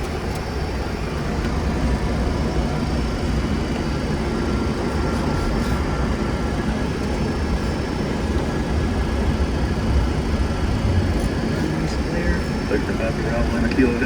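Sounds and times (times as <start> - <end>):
low rumble of engines and airflow: 0.0 - 14.0.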